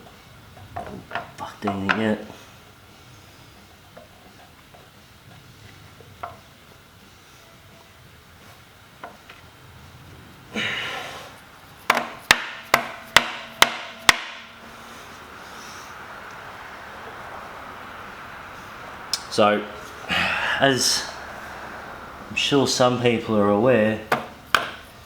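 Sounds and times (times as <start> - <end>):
hammer tapping on metal: 11.9 - 14.5.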